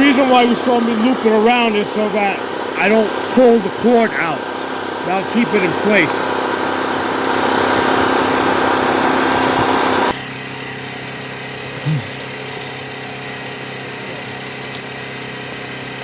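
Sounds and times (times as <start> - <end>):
loud noisy sound: 0.0 - 10.2
generator engine running: 0.0 - 16.0.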